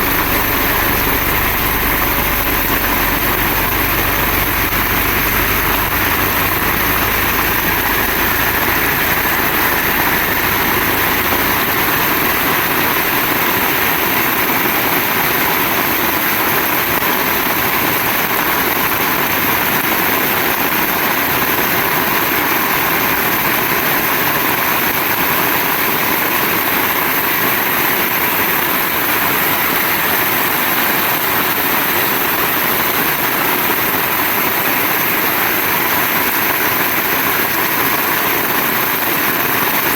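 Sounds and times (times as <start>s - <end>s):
low rumble: 0.0s - 13.2s
heavy rain falling: 0.0s - 39.9s.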